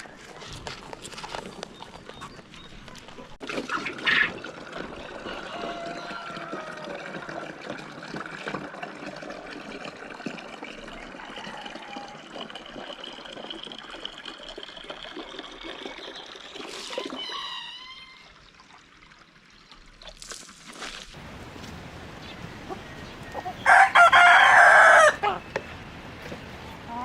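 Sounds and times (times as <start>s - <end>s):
trickling splashing water: 3.2s - 21.4s.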